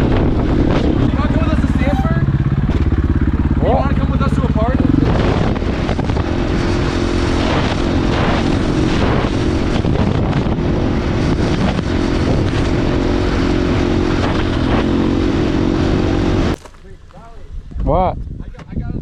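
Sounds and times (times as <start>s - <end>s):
dirt bike engine idling: 1.1s - 5.1s.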